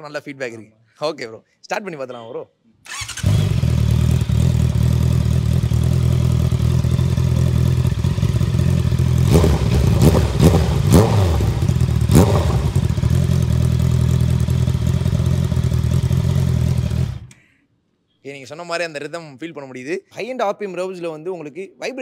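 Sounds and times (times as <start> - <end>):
motorcycle engine idling: 2.9 - 17.3.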